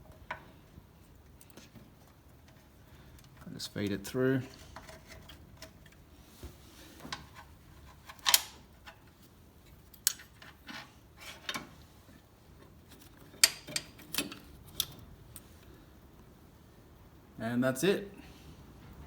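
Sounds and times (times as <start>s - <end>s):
light metallic clicks and scrapes: 0.1s - 6.2s, 6.9s - 15.7s.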